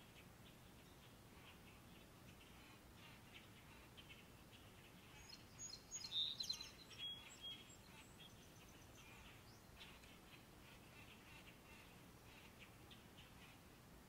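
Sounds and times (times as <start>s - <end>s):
small songbirds chirping: 0.0s - 14.0s.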